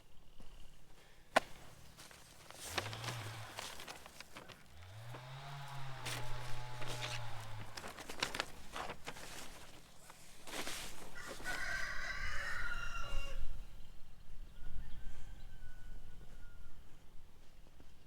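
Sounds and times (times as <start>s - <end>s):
rooster crowing: 11.0s - 13.6s, 14.7s - 17.0s.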